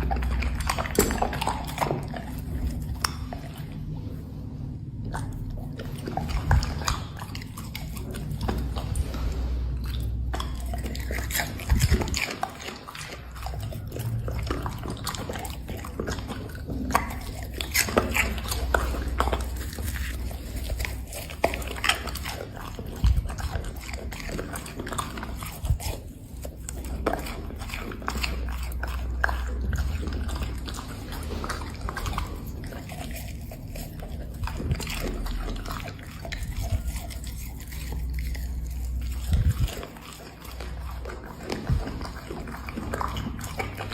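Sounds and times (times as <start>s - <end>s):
dog chewing crunchy treats: 0.0s - 43.9s.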